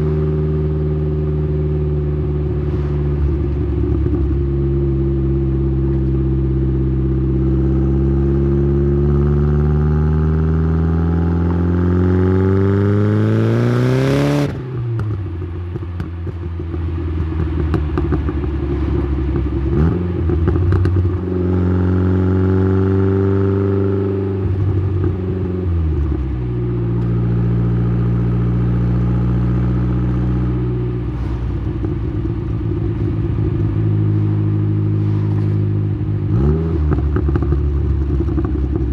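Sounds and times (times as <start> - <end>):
car engine exhaust revving: 16.6 - 38.9.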